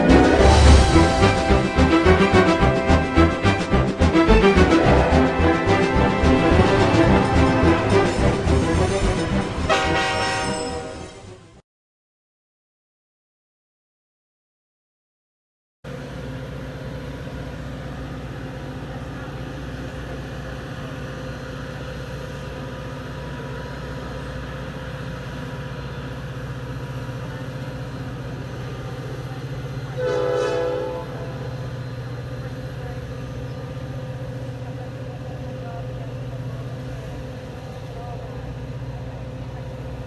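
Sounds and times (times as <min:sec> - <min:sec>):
diesel train humming: 0:00.0 - 0:11.5, 0:16.0 - 0:40.0
train horn blast: 0:00.0 - 0:11.6, 0:30.0 - 0:31.8.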